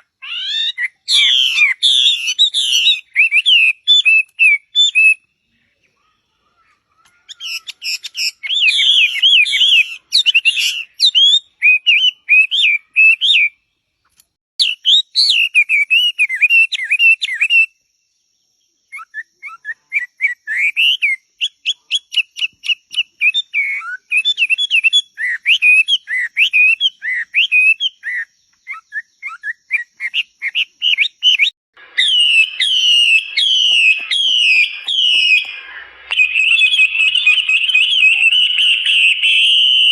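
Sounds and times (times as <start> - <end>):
songbird warbling: 0.0 - 13.6, 18.9 - 39.9.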